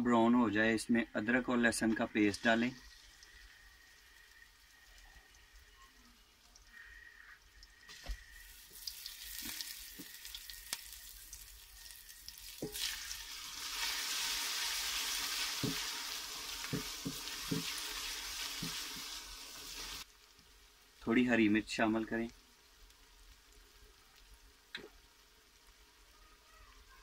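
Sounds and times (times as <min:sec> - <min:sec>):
paste sizzling in hot ghee: 0:01.5 - 0:27.0
wooden spoon knocking a pot: 0:15.6 - 0:15.9, 0:16.7 - 0:17.8.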